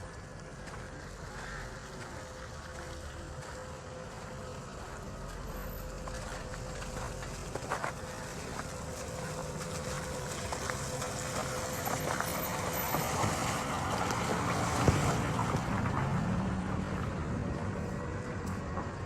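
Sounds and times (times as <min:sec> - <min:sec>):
motor vehicle running: 0:00.0 - 0:19.0.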